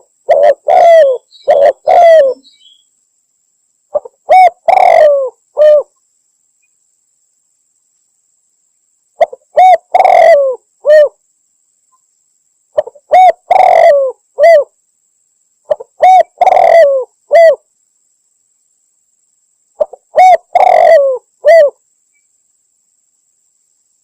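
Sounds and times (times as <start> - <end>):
dove cooing: 0.0 - 2.5, 3.9 - 5.9, 9.2 - 11.2, 12.8 - 14.7, 15.7 - 17.6, 19.8 - 21.8.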